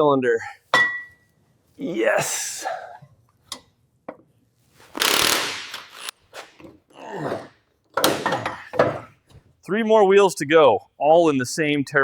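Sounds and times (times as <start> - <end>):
short noisy bursts: 4.9 - 6.1.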